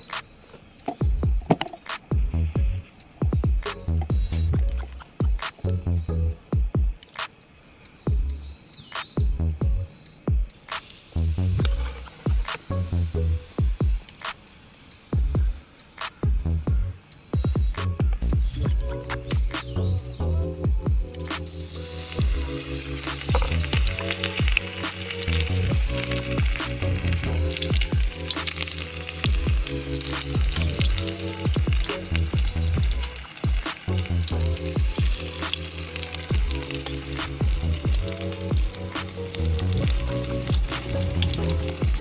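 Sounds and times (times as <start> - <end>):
background music with beat: 0.9 - 7.4, 8.1 - 14.5, 15.1 - 42.0
food frying in hot oil: 10.2 - 17.8, 21.0 - 42.0.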